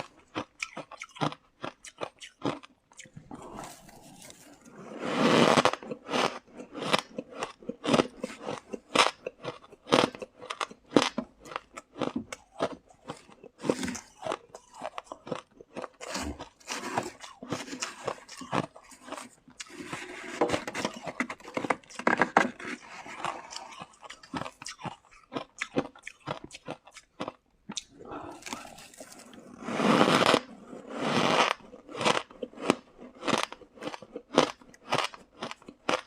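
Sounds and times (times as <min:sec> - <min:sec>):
ice being chewed: 0:00.0 - 0:36.0.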